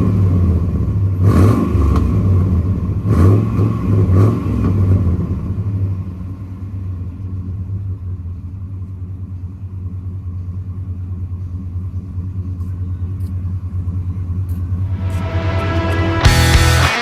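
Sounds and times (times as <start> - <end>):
truck engine idling: 6.1 - 16.9.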